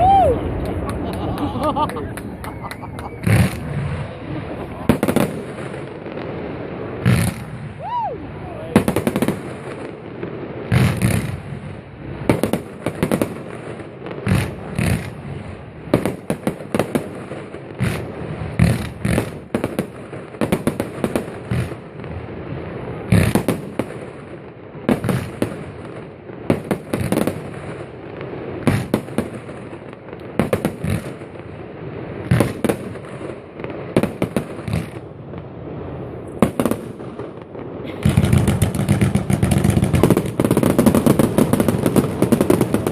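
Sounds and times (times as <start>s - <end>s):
fireworks bangs: 0.0s - 42.9s.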